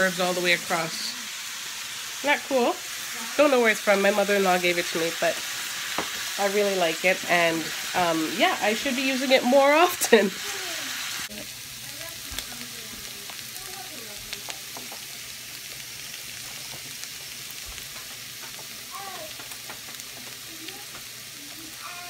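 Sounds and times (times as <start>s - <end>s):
vegetables sizzling in a frying pan: 0.0s - 22.0s
wooden spatula tapping and scraping pan: 5.9s - 6.3s, 16.4s - 21.1s.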